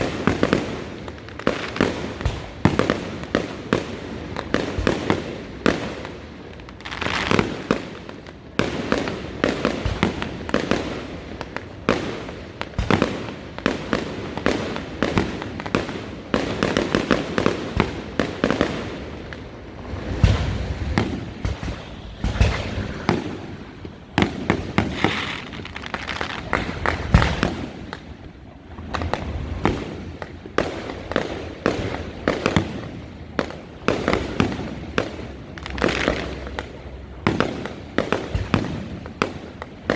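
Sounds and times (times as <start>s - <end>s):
fireworks bangs and crackling pops: 0.0s - 39.9s
deep firework booms: 8.6s - 39.4s.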